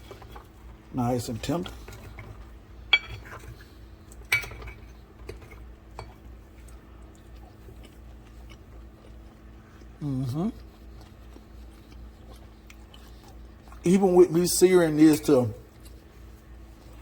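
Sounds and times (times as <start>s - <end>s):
cutlery clinking on a plate: 2.9s - 3.5s, 4.3s - 6.1s.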